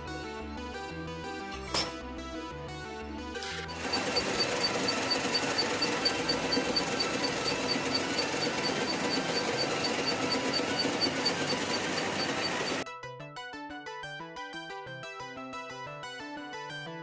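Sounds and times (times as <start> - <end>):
machine running with rapid ticking: 3.4 - 12.8.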